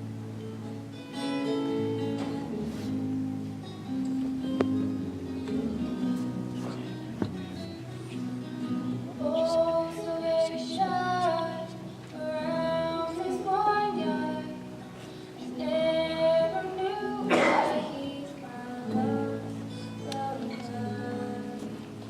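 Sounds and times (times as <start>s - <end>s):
instrumental accompaniment: 0.3s - 10.1s
young woman singing: 9.0s - 22.0s.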